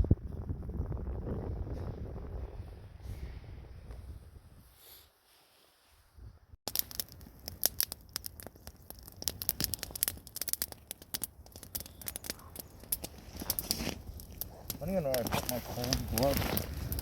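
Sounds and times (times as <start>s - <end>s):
material crinkling and crackling: 6.7s - 17.0s.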